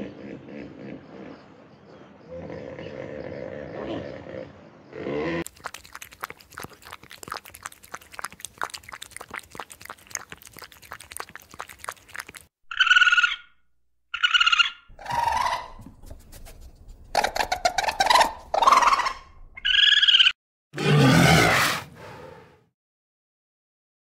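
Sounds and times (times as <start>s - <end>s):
tiger lapping water: 5.4s - 13.3s, 14.9s - 19.4s
short wavering animal calls: 14.2s - 15.8s.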